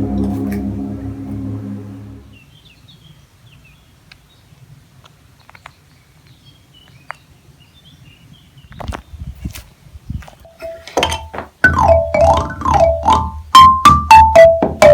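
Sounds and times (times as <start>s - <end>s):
ringing musical tone: 0.0s - 2.4s
low outdoor rumble: 0.0s - 2.5s
songbirds chirping: 2.2s - 10.9s.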